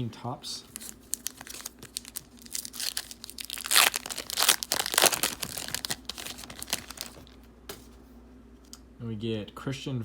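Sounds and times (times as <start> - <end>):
wrapper tearing and crinkling: 0.7 - 7.4.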